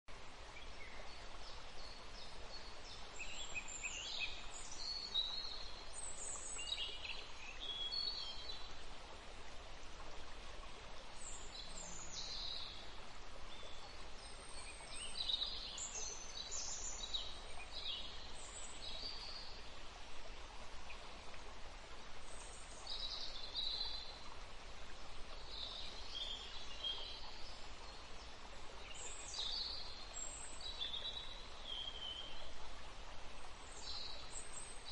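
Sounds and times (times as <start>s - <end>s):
faint hiss: 0.1s - 34.9s
small birds chirping: 25.0s - 32.5s.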